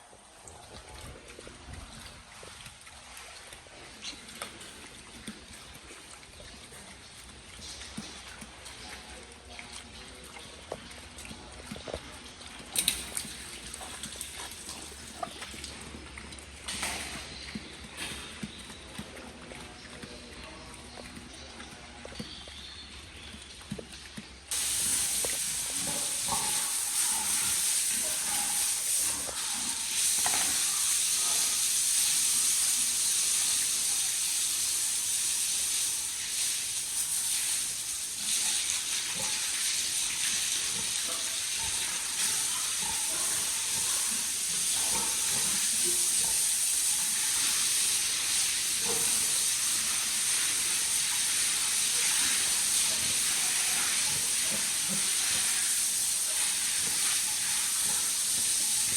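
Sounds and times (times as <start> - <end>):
water spray hissing: 24.5 - 58.9.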